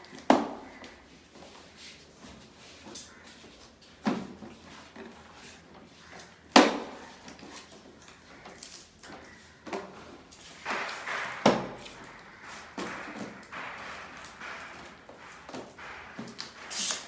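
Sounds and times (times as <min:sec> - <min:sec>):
sharp knocks: 0:10.4 - 0:17.0.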